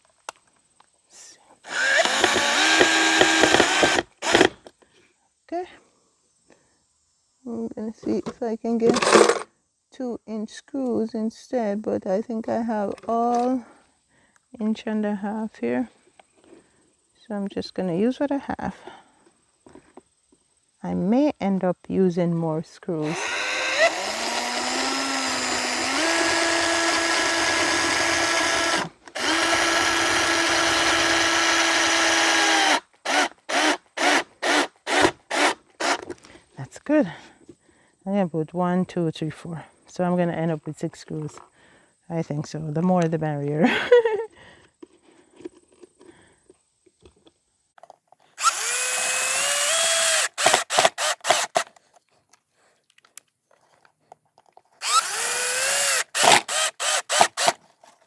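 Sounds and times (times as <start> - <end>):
power drill motor whining: 1.6 - 4.6, 23.0 - 36.2, 48.4 - 51.7, 54.8 - 57.6.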